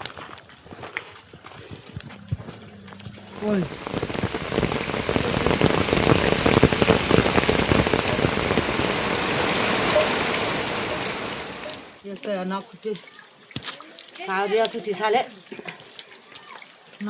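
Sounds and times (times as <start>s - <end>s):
heavy rain pattering: 3.3s - 12.4s.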